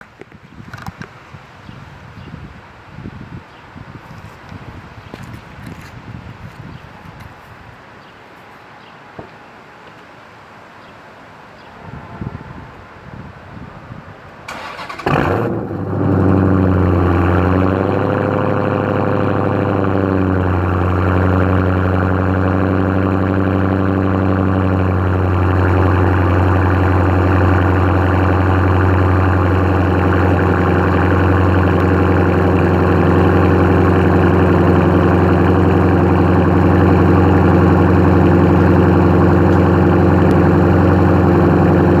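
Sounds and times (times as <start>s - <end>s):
loud car engine idling: 14.6s - 42.0s.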